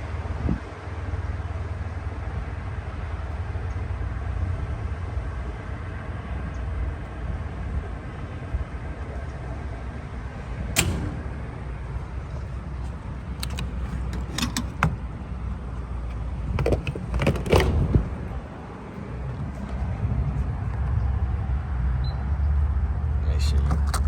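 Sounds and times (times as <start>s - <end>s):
low rumble: 4.0s - 21.8s
fuel nozzle clicks and knocks: 12.3s - 15.1s, 16.0s - 18.2s.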